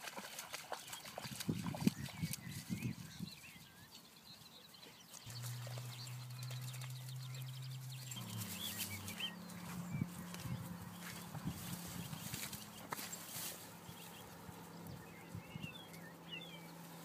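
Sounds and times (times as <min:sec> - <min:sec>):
small birds chirping: 0:00.2 - 0:17.0
steady low hum: 0:05.3 - 0:17.0.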